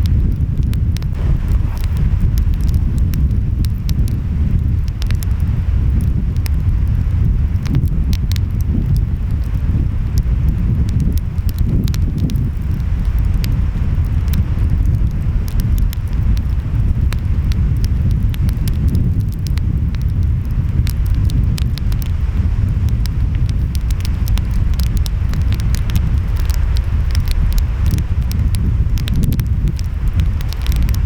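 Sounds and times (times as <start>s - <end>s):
wind: 0.0s - 31.0s
wood fire crackling and popping: 0.0s - 31.0s.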